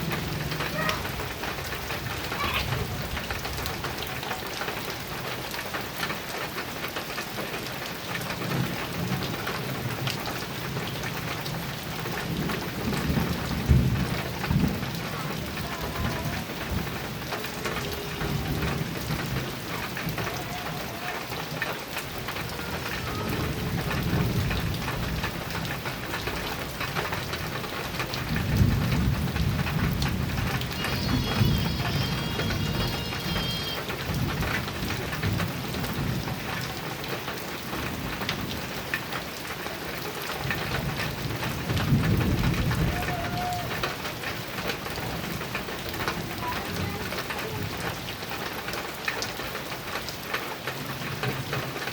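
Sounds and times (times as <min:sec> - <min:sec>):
heavy rain on a metal roof: 0:00.0 - 0:51.9
low thunder rumbling: 0:08.4 - 0:38.9, 0:39.8 - 0:48.2.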